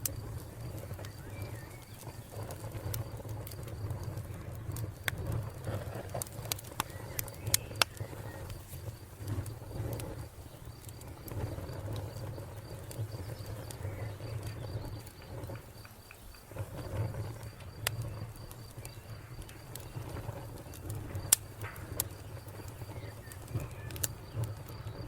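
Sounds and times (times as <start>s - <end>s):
cricket chirping: 0.0s - 25.0s
wood fire crackling and popping: 0.0s - 25.0s
bird calling softly: 0.8s - 2.5s, 6.6s - 9.4s, 10.4s - 21.0s, 21.7s - 25.0s.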